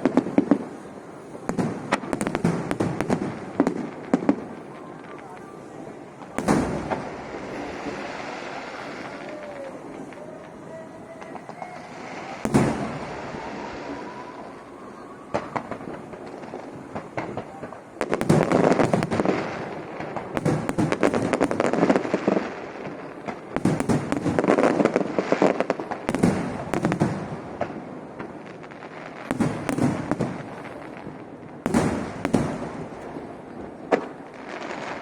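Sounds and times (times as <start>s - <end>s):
firework crackling: 0.0s - 35.0s
firework whistle and bang: 8.7s - 16.4s.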